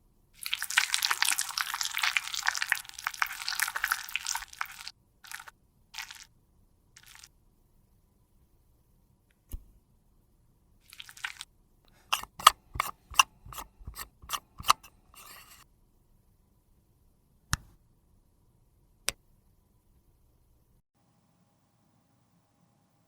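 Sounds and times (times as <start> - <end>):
sharp clicks of containers: 12.1 - 15.6.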